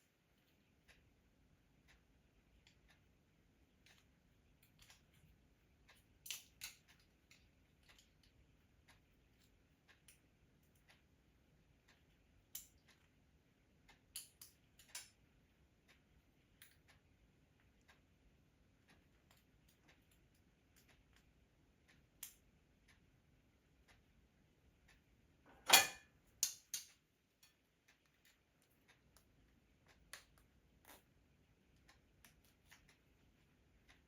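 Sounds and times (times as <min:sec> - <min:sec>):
small clicks and snaps of clamps: 0:03.8 - 0:05.3, 0:05.9 - 0:11.0, 0:11.9 - 0:13.2, 0:13.9 - 0:15.2, 0:21.9 - 0:23.0, 0:24.9 - 0:31.1.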